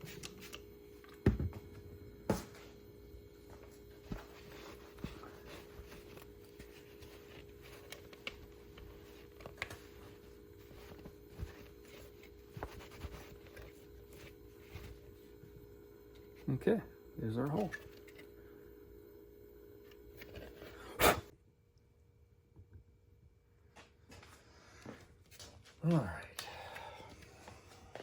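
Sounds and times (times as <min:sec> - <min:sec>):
steady hum: 0:00.0 - 0:22.2.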